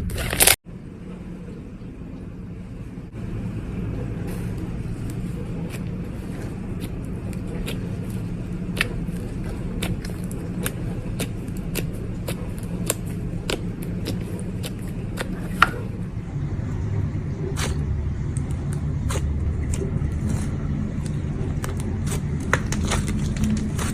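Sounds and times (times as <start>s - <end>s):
low rumble: 0.0s - 23.9s.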